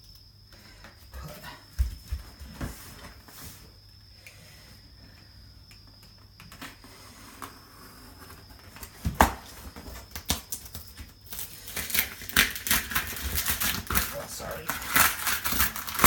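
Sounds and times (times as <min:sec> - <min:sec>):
packaging rustling and scraping: 0:06.5 - 0:16.0.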